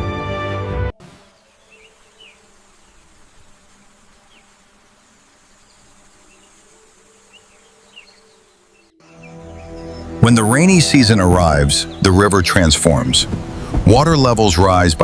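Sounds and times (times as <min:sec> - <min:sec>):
high insect drone: 0:01.1 - 0:12.0.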